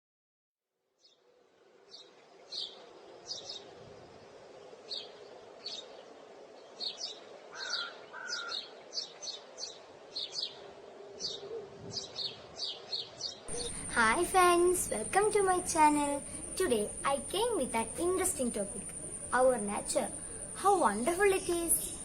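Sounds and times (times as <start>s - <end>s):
small birds chirping: 1.9s - 22.0s
lower bird call: 6.9s - 8.8s, 13.5s - 22.0s
low background hum: 13.5s - 22.0s.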